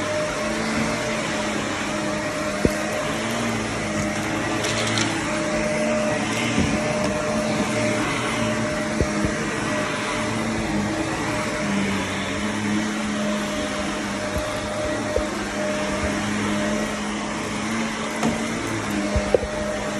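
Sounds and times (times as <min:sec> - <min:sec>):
vacuum cleaner running on carpet: 0:00.0 - 0:19.9.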